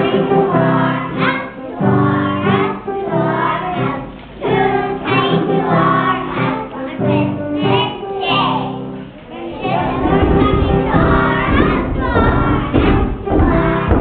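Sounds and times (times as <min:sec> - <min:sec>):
children singing in unison: 0:00.0 - 0:08.4, 0:09.2 - 0:14.0
keyboard chords: 0:00.0 - 0:14.0.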